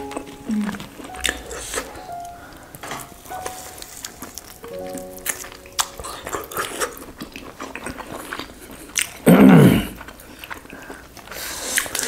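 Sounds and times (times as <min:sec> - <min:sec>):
person humming: 0:00.0 - 0:02.5
people chewing food: 0:00.0 - 0:12.0.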